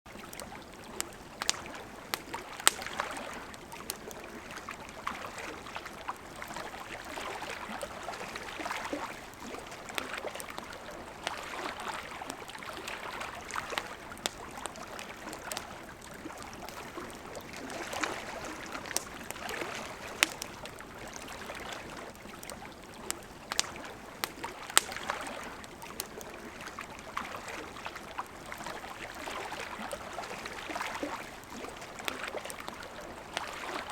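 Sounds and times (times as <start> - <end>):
river flowing: 0.1 - 33.9
wood fire crackling: 0.2 - 5.1, 12.1 - 27.2.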